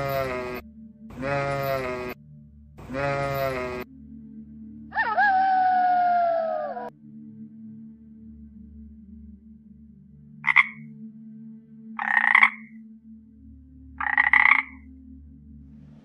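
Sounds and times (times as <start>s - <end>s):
toad croaking: 0.0s - 0.6s, 1.2s - 2.2s, 2.8s - 3.9s, 4.9s - 6.9s, 10.4s - 10.9s, 12.0s - 12.8s, 14.0s - 14.9s.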